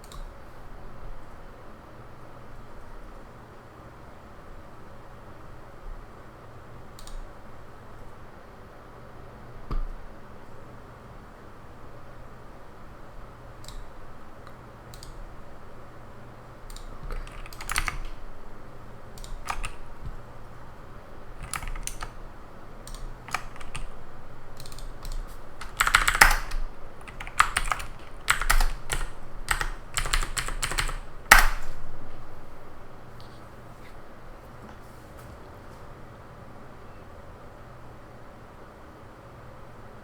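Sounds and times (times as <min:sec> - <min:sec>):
faint steady low hum: 0:00.0 - 0:40.0
typing on computer keyboard: 0:14.5 - 0:15.2, 0:16.7 - 0:18.3, 0:19.1 - 0:20.6, 0:21.4 - 0:22.2, 0:22.8 - 0:31.8.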